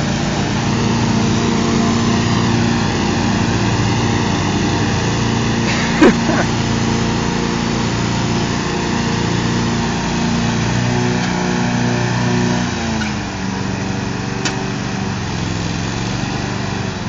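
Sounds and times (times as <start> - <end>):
riding lawn mower engines: 0.0 - 17.0.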